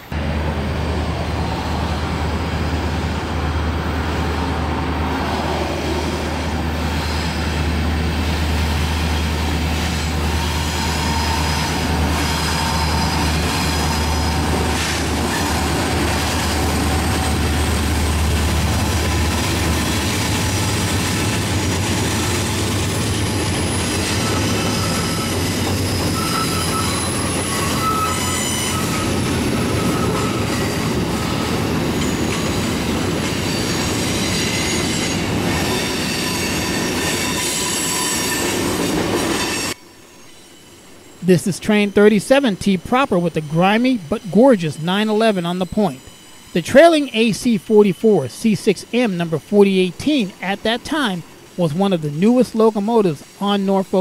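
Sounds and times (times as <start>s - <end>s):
freight cars rolling by: 0.0s - 39.8s
locomotive engines droning: 0.0s - 54.0s
wheel flanges squealing: 5.4s - 47.1s.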